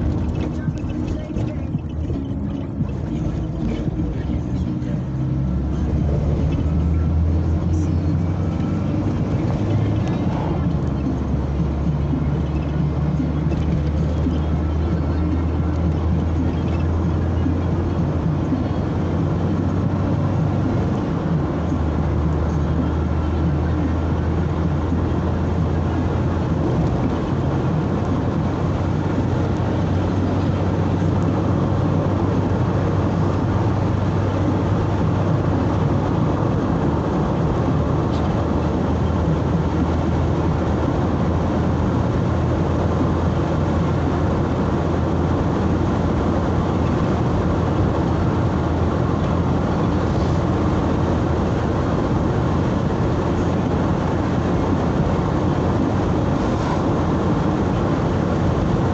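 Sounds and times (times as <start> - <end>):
low engine hum: 0.0 - 58.9
tyre and road noise: 0.0 - 58.9.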